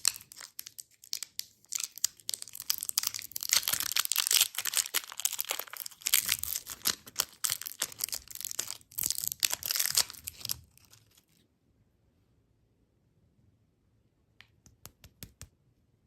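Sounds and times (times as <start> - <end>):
candy wrapper crinkling: 0.0 - 11.4.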